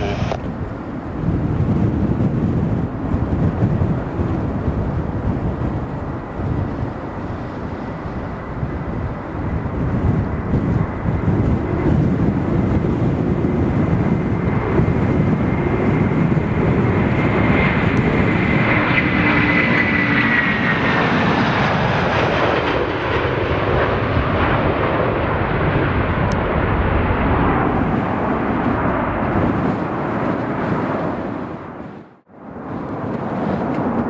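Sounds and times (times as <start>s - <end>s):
jet engines with high whine: 0.0s - 34.0s.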